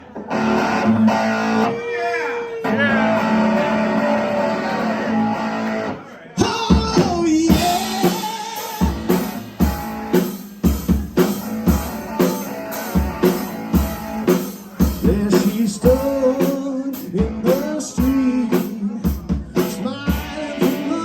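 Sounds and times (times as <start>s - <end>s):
drum kit: 0.0s - 1.7s, 2.6s - 21.0s
electric guitar playing: 0.0s - 1.8s, 2.6s - 6.1s, 7.5s - 14.9s.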